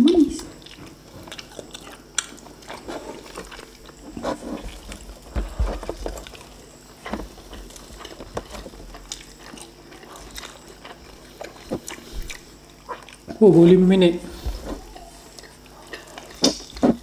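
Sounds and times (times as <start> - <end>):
people chewing food: 0.0 - 17.0
mouth clicks and smacks: 15.3 - 17.0.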